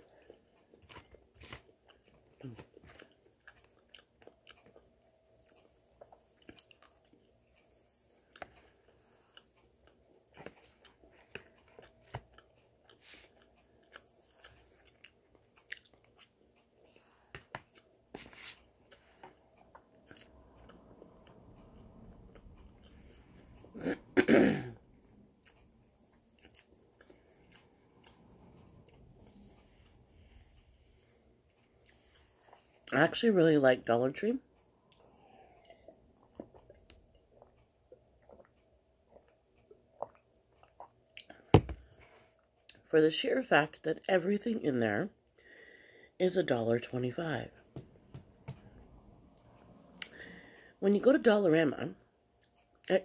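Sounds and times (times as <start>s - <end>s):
crunchy chewing: 9.3s - 21.4s.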